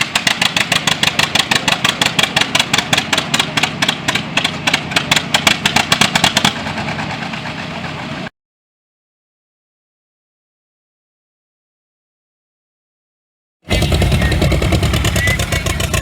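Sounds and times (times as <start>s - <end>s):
tractor engine popping exhaust: 0.0s - 8.2s, 13.7s - 16.0s.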